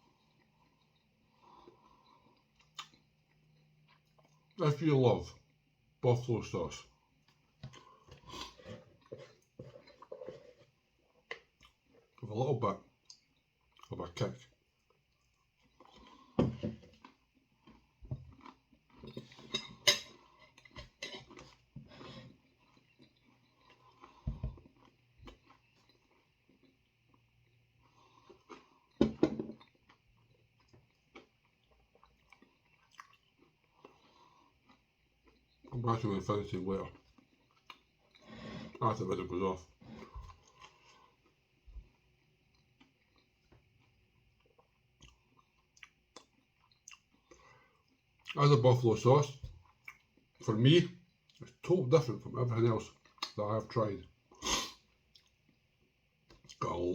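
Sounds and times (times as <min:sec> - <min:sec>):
cutlery and plate clinking: 0:19.1 - 0:20.2.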